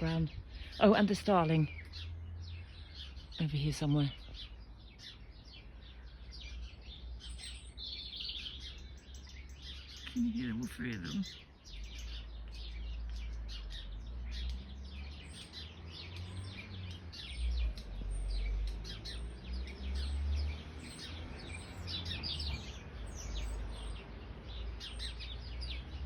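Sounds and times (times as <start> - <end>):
starling calling: 0.0 - 20.2
robin calling: 0.0 - 25.8
sparrows chirping: 0.0 - 26.0.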